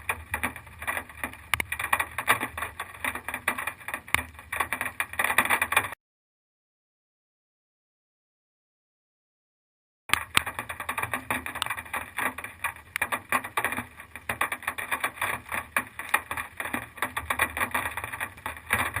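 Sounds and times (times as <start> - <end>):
dense irregular crackling: 0.0 - 6.0, 10.1 - 19.0.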